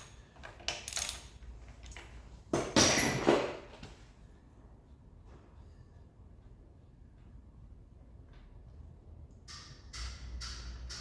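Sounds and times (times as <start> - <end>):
metal tools clinking: 0.0 - 3.7.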